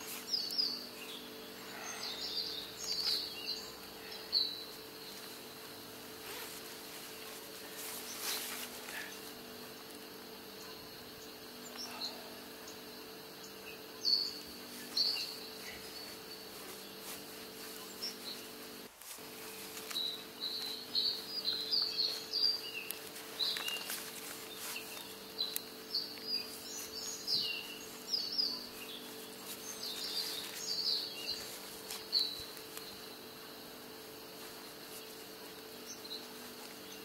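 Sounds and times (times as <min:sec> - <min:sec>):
faint steady hum: 0:00.0 - 0:37.0
small birds chirping: 0:00.0 - 0:37.0.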